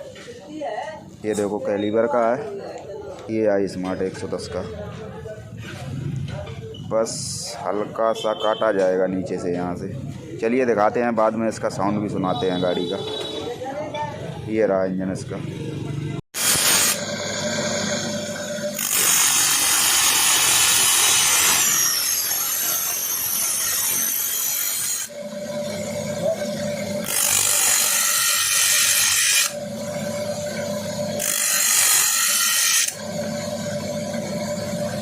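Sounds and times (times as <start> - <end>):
electric grinder humming: 16.4 - 35.0
grinder grinding metal: 16.4 - 35.0.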